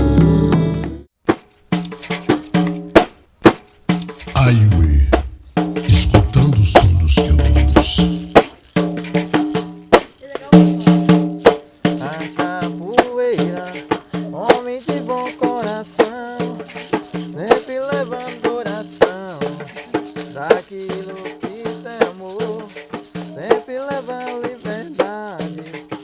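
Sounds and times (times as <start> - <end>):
shaker keeping rhythm: 1.3 - 26.0
voice-like melody: 4.3 - 8.3.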